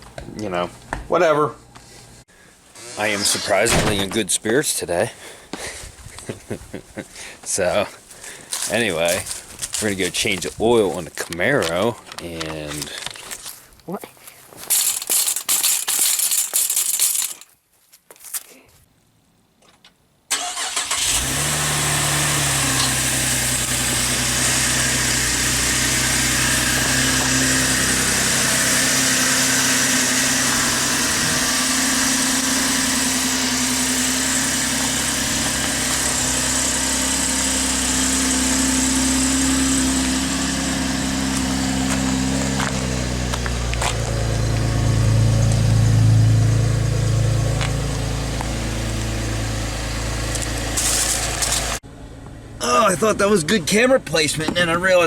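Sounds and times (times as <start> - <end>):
car engine starting and idling: 20.3 - 55.0
rustling: 50.4 - 51.8.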